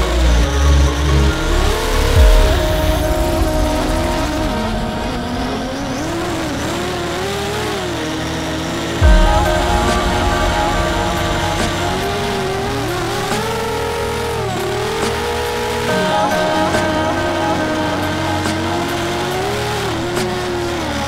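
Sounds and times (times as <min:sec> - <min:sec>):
drone motors and propellers whining: 0:00.0 - 0:21.0
low thud: 0:09.0 - 0:13.7.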